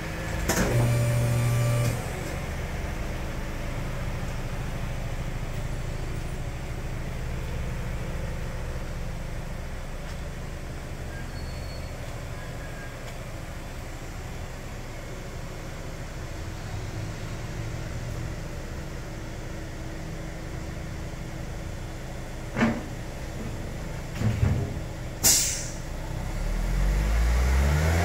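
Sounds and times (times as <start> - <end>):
car engine starting and idling: 0.0 - 11.2.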